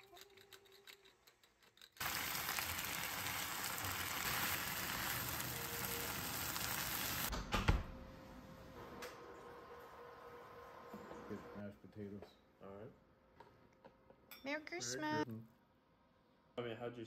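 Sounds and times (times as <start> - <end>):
food sizzling in frying pan: 2.0 - 7.3.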